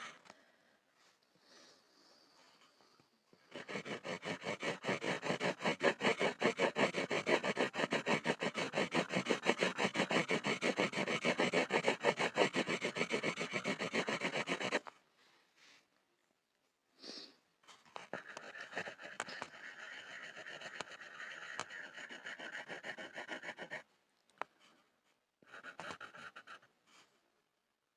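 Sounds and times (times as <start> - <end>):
pencil scribbling on a board: 3.5 - 14.8, 18.0 - 23.9, 25.4 - 27.1.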